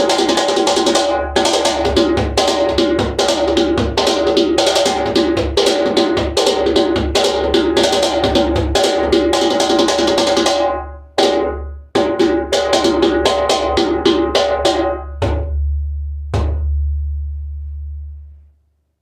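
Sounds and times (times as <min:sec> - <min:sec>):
djembe played by hand: 0:00.0 - 0:15.6, 0:16.3 - 0:17.1
sharp drum strikes: 0:11.2 - 0:18.4
deep low drum ring: 0:14.6 - 0:18.6.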